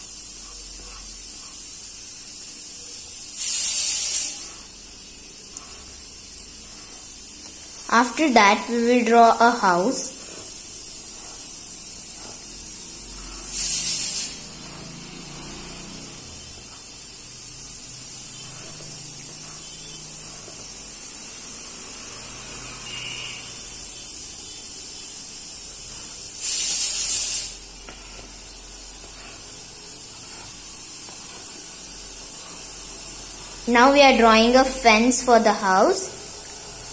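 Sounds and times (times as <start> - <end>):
steady hiss: 0.0 - 36.9
pencil scratching on paper: 0.4 - 1.9, 3.6 - 4.9, 5.5 - 12.5, 18.3 - 20.7.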